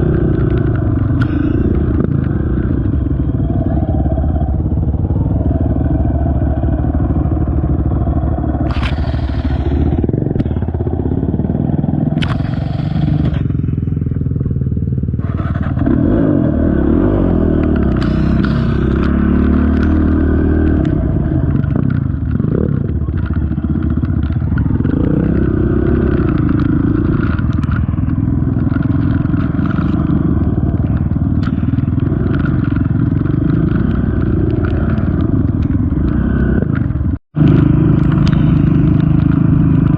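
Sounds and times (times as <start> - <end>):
engine revving with throttle: 0.0 - 14.1, 14.7 - 39.9
sharp clacks: 12.1 - 13.8, 17.5 - 39.9.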